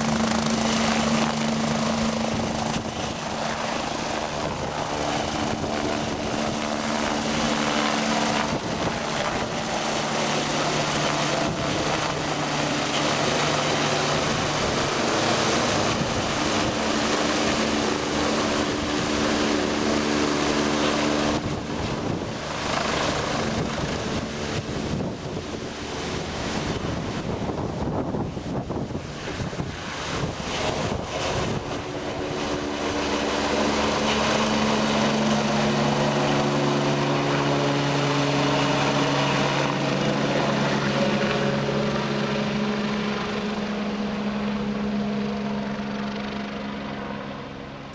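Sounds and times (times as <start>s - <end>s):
helicopter engine and rotor hum: 0.0s - 47.9s.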